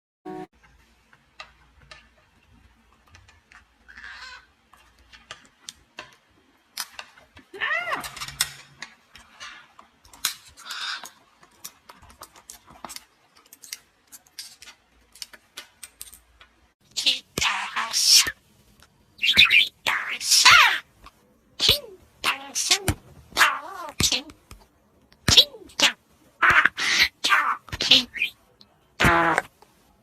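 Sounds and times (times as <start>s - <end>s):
parrot squawking: 3.9s - 4.5s, 10.6s - 11.2s, 17.0s - 18.4s, 19.2s - 20.9s, 21.6s - 24.3s, 25.3s - 28.4s.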